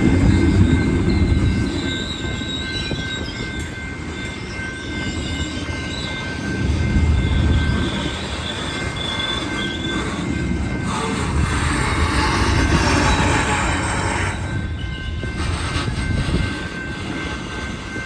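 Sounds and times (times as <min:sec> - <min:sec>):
train cars rumbling: 0:00.0 - 0:18.0
wheels squealing: 0:00.0 - 0:18.0.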